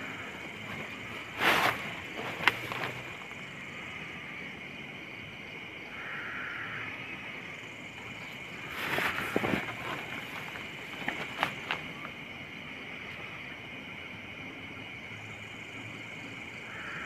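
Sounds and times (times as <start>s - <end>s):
insects droning: 0.0s - 17.0s
short rustle: 0.6s - 3.3s, 8.6s - 12.1s.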